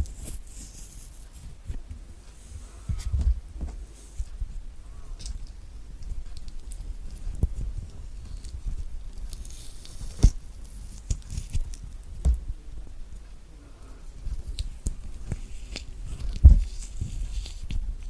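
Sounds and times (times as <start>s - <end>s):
handling knocks: 12.1s - 12.7s, 16.2s - 16.7s.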